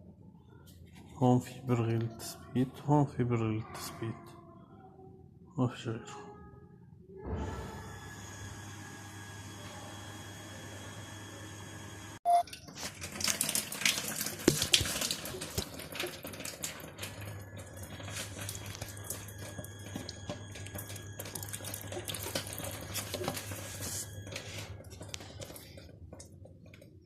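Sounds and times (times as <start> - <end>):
coolant trickling and spattering: 12.5 - 23.6.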